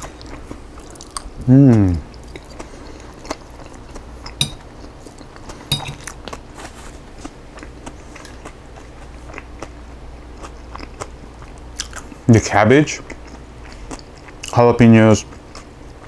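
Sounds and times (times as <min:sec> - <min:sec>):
metal utensil clinking bowl: 0:04.4 - 0:04.6, 0:05.7 - 0:06.1.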